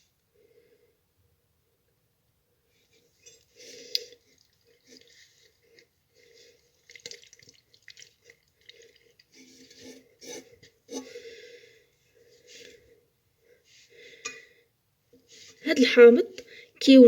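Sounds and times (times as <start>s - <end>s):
liquid sloshing: 3.2s - 11.1s
glass jar scraping: 9.4s - 11.2s.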